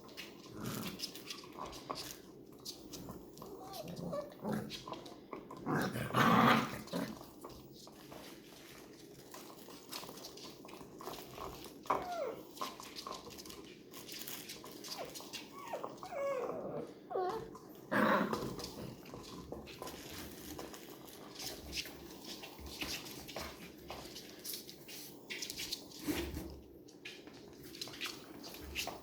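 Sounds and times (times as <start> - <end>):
puppies whimpering and yipping: 11.9 - 12.6, 14.9 - 17.5.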